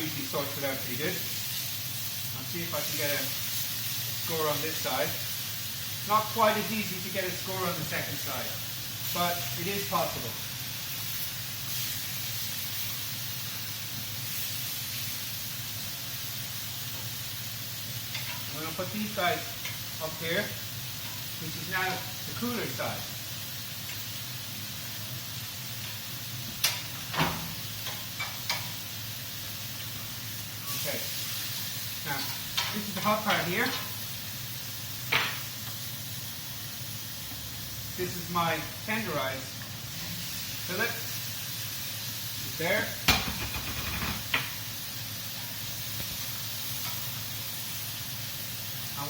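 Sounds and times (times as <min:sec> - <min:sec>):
chicken sizzling on a grill: 0:00.0 - 0:49.0
sharp clacks on grill: 0:25.8 - 0:28.8, 0:32.5 - 0:33.9, 0:35.1 - 0:35.4, 0:43.0 - 0:44.6.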